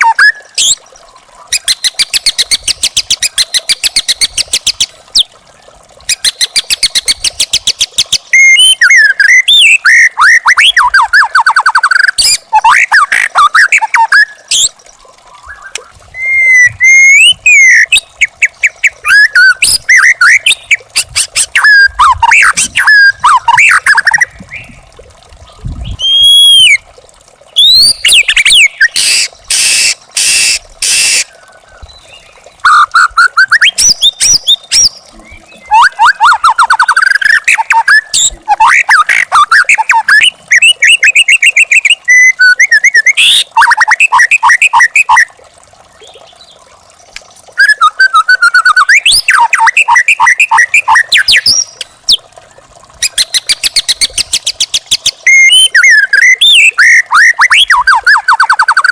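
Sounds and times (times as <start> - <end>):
bird singing varied song: 6.1 - 20.8, 21.4 - 26.8, 27.5 - 30.0, 30.8 - 32.5, 33.2 - 44.1
harsh rasping bird calls: 27.6 - 40.6.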